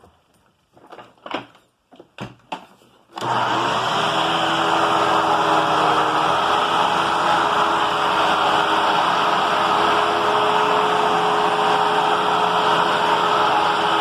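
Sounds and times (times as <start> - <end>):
vacuum cleaner motor running: 3.2 - 14.0.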